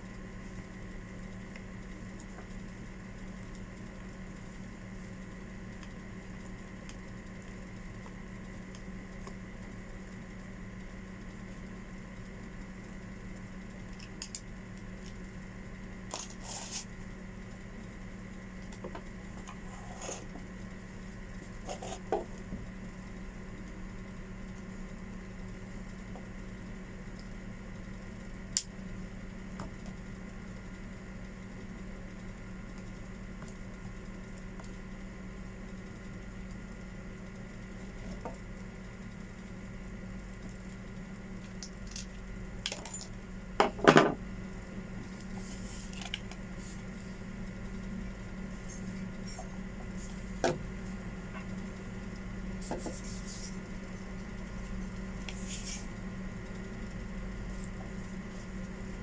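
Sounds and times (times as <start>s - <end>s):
steady low hum: 0.0s - 59.0s
light clicks and scrapes: 52.6s - 53.7s.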